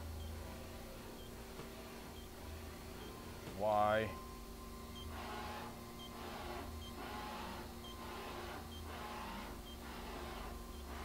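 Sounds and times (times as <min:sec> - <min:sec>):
machine hum: 0:00.0 - 0:11.0
servo-driven whir: 0:04.6 - 0:11.0.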